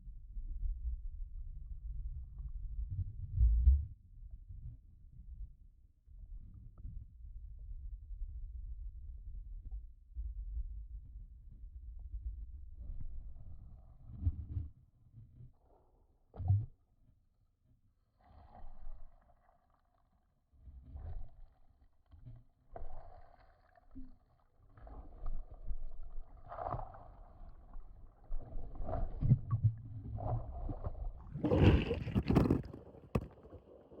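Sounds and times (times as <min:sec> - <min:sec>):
underwater gurgling and bubbles: 0:18.2 - 0:34.0.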